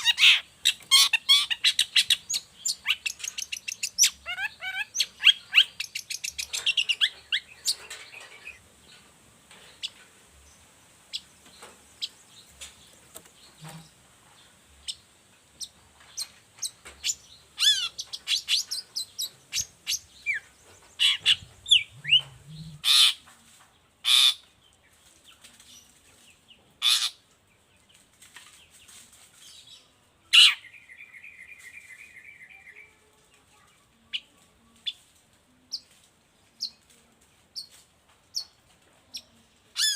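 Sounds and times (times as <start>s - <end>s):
bird harsh calls: 0.0s - 8.6s, 16.6s - 23.2s, 24.0s - 24.5s, 26.8s - 27.2s, 30.3s - 32.8s
bird singing varied song: 0.0s - 36.9s
bird twittering: 15.6s - 23.2s.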